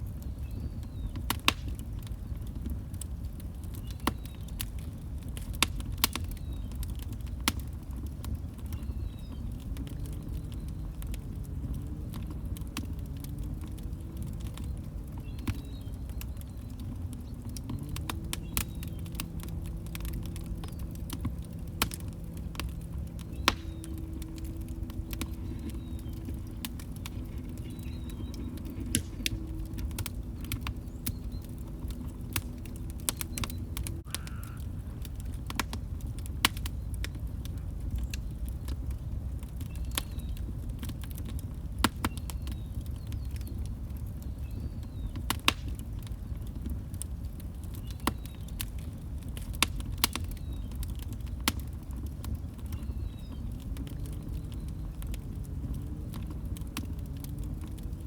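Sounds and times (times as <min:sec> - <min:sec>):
low steady hum: 0:00.0 - 0:45.2
log fire crackling: 0:00.0 - 0:58.0.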